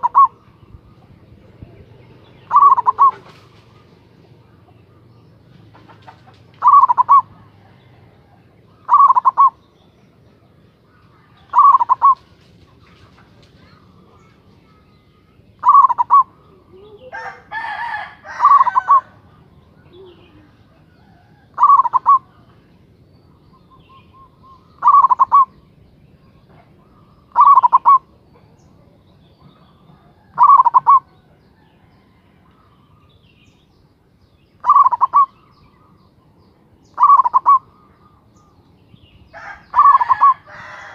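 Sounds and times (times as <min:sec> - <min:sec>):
dove cooing: 0:00.0 - 0:09.6, 0:11.2 - 0:14.8, 0:15.6 - 0:22.7, 0:23.6 - 0:25.6, 0:26.4 - 0:32.8, 0:34.6 - 0:36.0, 0:36.9 - 0:38.6, 0:39.3 - 0:40.9
harsh bird call: 0:02.2 - 0:04.1, 0:06.6 - 0:07.3, 0:08.8 - 0:09.7, 0:11.0 - 0:12.3, 0:13.6 - 0:22.5, 0:23.6 - 0:25.6, 0:27.0 - 0:28.1, 0:30.1 - 0:31.1, 0:34.6 - 0:36.0, 0:36.8 - 0:38.6, 0:39.3 - 0:40.9.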